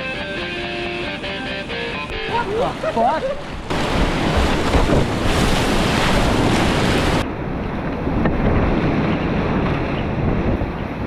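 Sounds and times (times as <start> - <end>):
whitewater rapids roaring: 0.8 - 7.2
wind buffeting microphone: 2.8 - 11.0.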